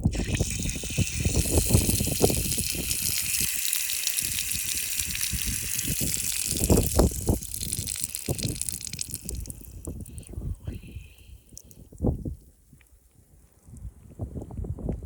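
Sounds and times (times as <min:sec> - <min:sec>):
wind gusting against microphone: 0:00.0 - 0:03.6, 0:04.2 - 0:12.4, 0:13.6 - 0:15.0
urine stream hissing on ground: 0:00.0 - 0:11.9.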